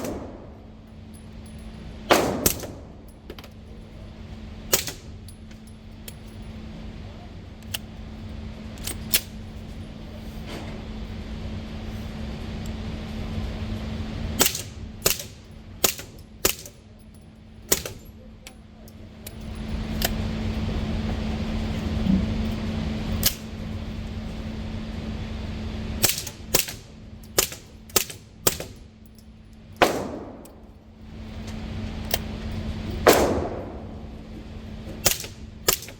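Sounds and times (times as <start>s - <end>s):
suppressed gunshots: 0.0s - 0.7s, 2.1s - 3.0s, 29.8s - 30.7s, 33.0s - 34.2s
steady low hum: 0.0s - 35.9s.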